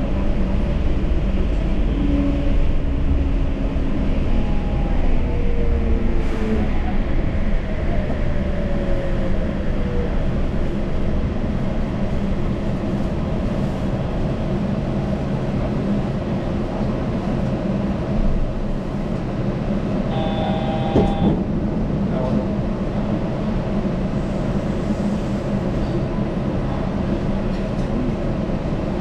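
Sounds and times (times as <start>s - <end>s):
rubber-tyred train running: 0.0s - 29.0s
short electronic tone: 20.1s - 21.3s.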